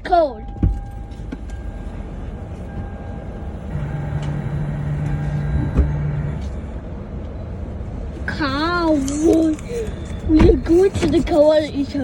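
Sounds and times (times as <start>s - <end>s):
car engine rumbling: 0.0s - 12.0s
low steady hum: 0.0s - 12.0s.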